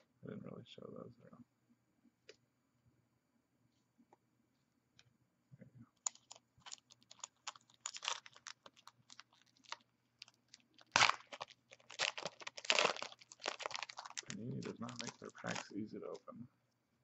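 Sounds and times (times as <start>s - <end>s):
foil wrapper crinkling and tearing: 6.0s - 15.7s.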